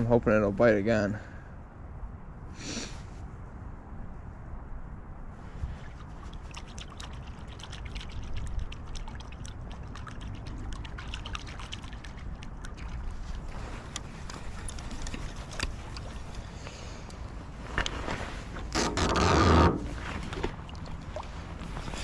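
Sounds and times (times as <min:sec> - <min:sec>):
creek trickling: 0:05.6 - 0:22.0
small splashes and clicks: 0:05.8 - 0:17.2, 0:20.2 - 0:22.0.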